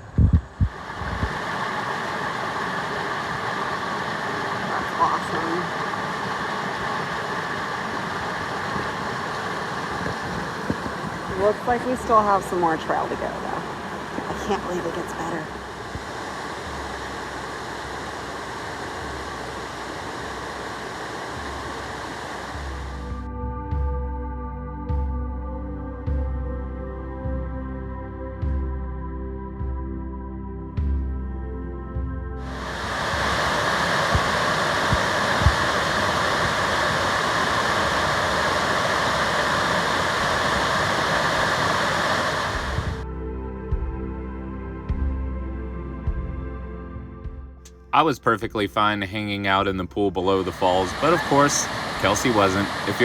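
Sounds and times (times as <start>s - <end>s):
low bumps: 0.0s - 1.5s
waterfall rushing: 0.6s - 23.2s, 32.4s - 43.0s, 50.2s - 53.0s
soft ambient music with bass: 14.2s - 33.5s, 42.5s - 53.0s.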